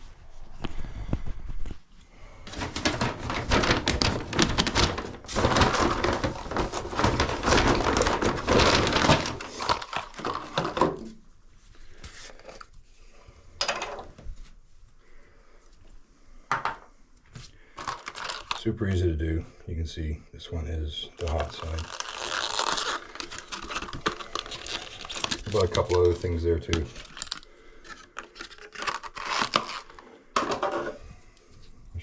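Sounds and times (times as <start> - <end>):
rustling and clattering parts: 2.4 - 11.3, 13.6 - 14.6, 16.5 - 18.7, 21.2 - 31.7
scattered clicks and knocks: 2.5 - 9.4.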